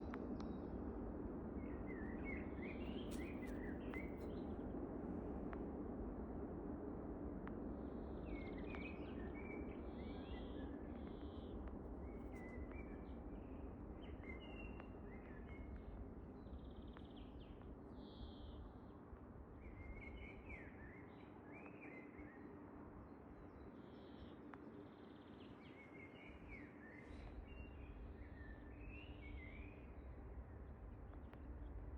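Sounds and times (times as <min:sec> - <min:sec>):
songbirds chirping and warbling: 0:23.6 - 0:30.0.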